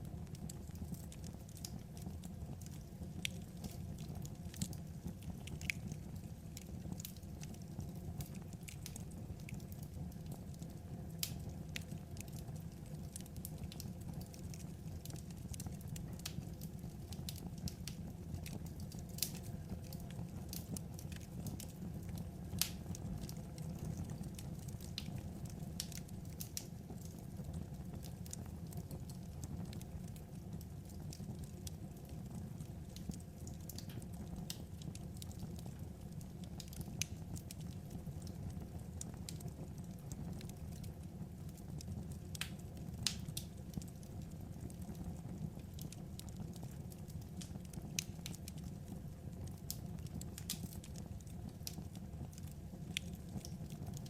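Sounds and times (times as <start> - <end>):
fire pops and snaps: 0.0 - 54.0
low rumble of burning logs: 0.0 - 54.0.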